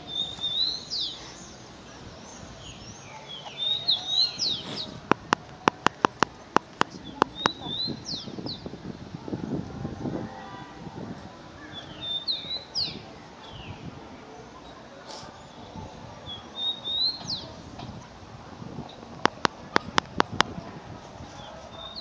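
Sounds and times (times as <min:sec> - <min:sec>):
wild birds calling: 0:00.0 - 0:08.7
sharp clicks: 0:04.6 - 0:07.6.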